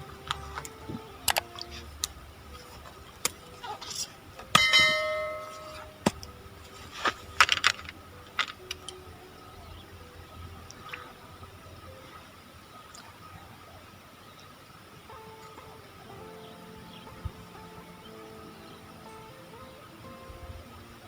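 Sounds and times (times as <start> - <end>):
small metal bell ringing: 4.5 - 6.0.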